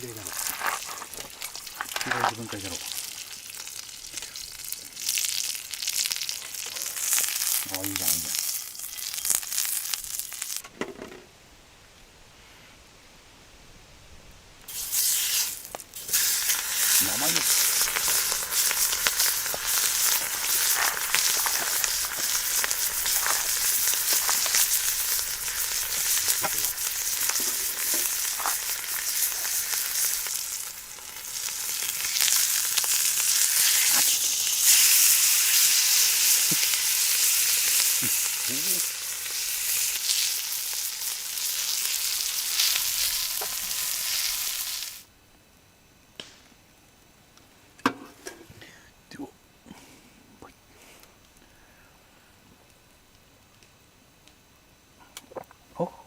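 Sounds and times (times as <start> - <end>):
steak sizzling in frying pan: 0.0 - 10.6, 14.7 - 45.1.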